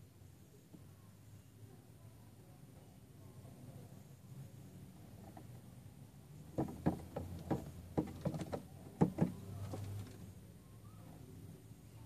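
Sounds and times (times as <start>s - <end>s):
bird tapping on car mirror: 6.4s - 10.2s.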